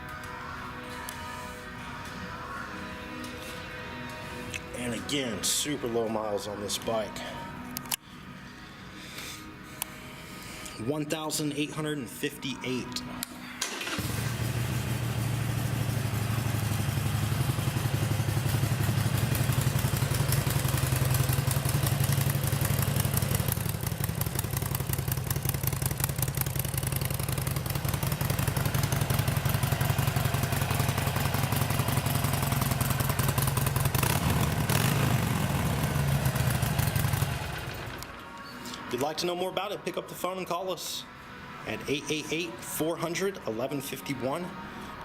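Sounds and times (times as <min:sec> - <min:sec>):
motorcycle engine shutting off: 0:13.7 - 0:38.2
motorcycle engine idling: 0:13.8 - 0:38.0.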